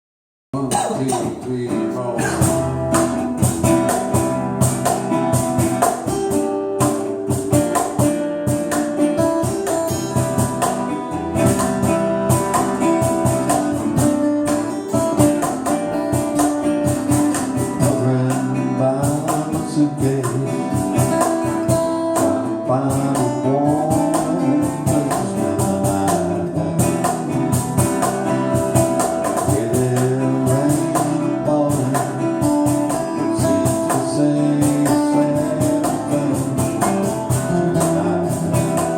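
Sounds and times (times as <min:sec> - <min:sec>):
band playing slow song: 0:00.6 - 0:38.9
strummed acoustic guitar: 0:00.6 - 0:38.9
sharp percussion strokes: 0:02.2 - 0:19.5.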